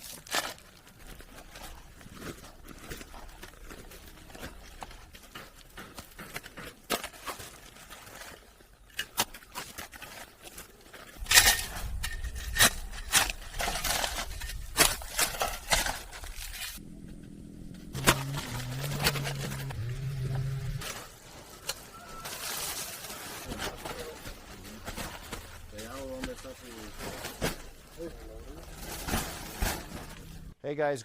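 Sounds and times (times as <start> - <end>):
low rumble: 16.7 - 20.9.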